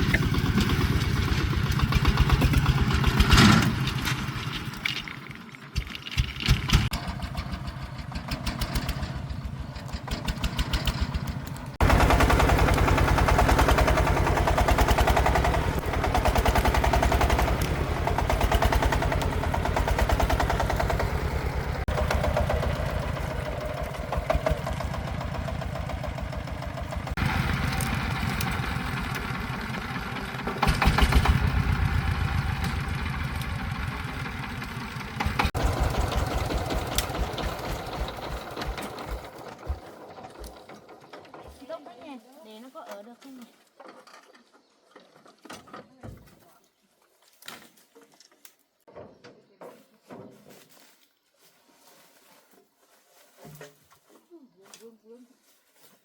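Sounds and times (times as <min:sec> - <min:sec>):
diesel engine chugging: 0:00.0 - 0:41.8.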